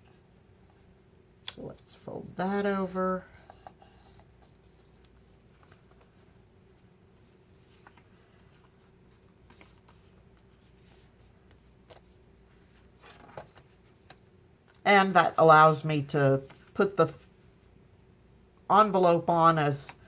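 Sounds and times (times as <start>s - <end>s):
faint steady hum: 0.0s - 20.0s
paper envelope handling: 3.4s - 14.2s.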